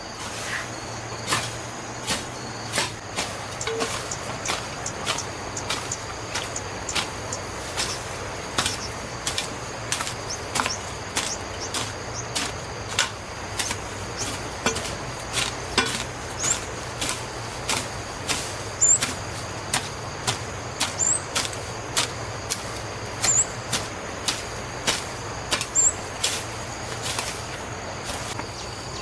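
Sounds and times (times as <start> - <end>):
hand tool striking: 1.3 - 27.5.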